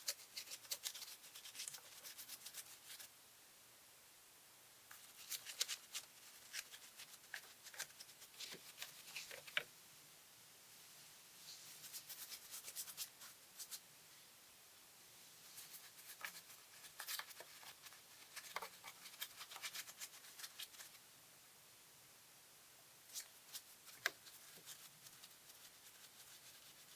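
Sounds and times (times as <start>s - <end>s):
scratchy rubbing: 0.0s - 3.1s, 4.9s - 9.6s, 11.6s - 13.8s, 15.5s - 21.0s, 23.1s - 26.9s.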